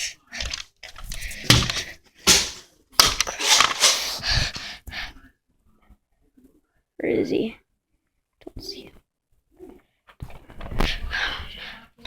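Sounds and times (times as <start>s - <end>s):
rustling and crunching: 0.4s - 4.6s.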